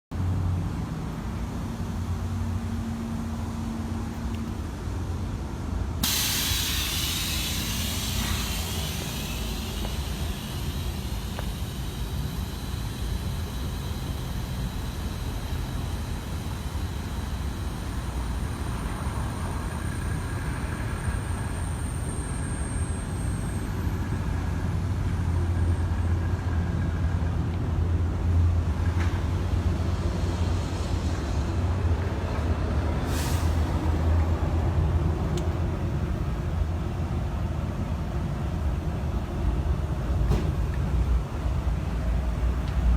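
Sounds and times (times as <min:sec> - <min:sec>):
truck diesel engine running: 0:01.8 - 0:42.9
compressed air hissing: 0:06.0 - 0:18.6, 0:33.1 - 0:33.6.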